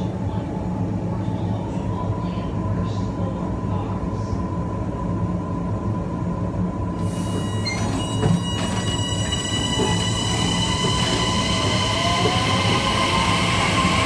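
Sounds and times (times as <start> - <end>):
train motor low rumble: 0.0 - 14.0
high-pitched whine tones: 7.0 - 14.0.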